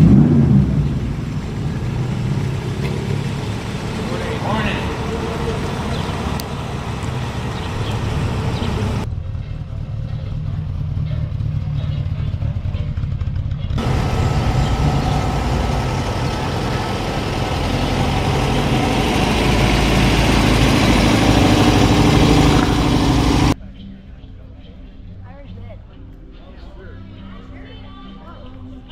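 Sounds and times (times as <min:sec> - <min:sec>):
background voices: 0:00.0 - 0:09.0, 0:13.8 - 0:23.6
car engine running at low speed: 0:00.0 - 0:23.6.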